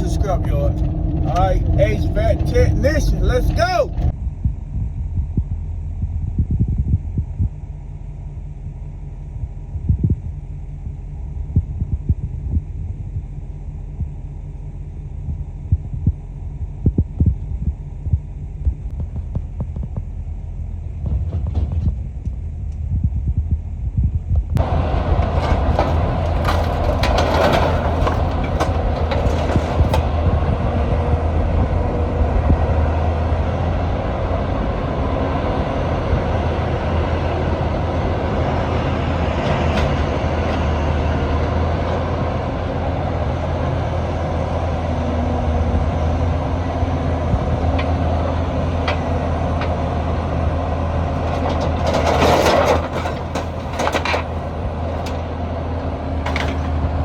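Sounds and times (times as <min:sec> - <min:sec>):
car engine and road rumble: 0:00.0 - 0:57.0
tyre noise: 0:24.6 - 0:30.4, 0:51.1 - 0:55.2.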